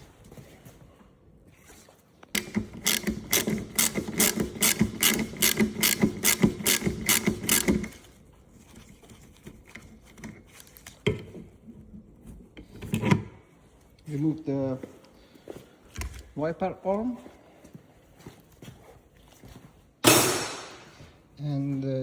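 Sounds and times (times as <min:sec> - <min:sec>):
ratchet wrench clicking: 0:02.4 - 0:08.0.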